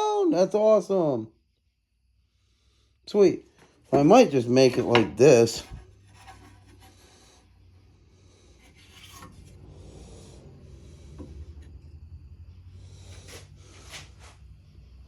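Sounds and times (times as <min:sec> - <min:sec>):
steady low hum: 0:00.8 - 0:15.0
wooden pieces rubbing and knocking: 0:03.8 - 0:07.5.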